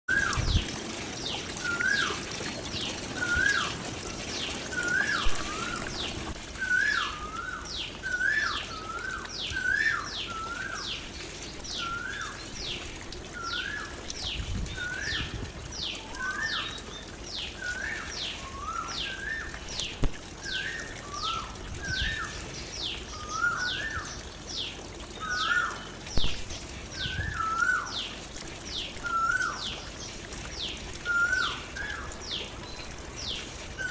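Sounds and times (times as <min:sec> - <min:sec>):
trickling water: 0:00.1 - 0:33.9.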